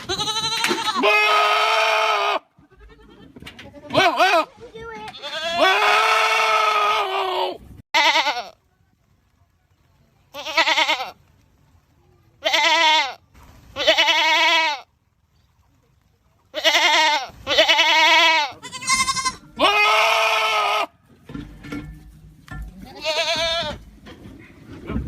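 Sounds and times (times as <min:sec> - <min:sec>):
goats screaming: 0:00.0 - 0:03.3, 0:05.2 - 0:08.4, 0:16.6 - 0:20.9.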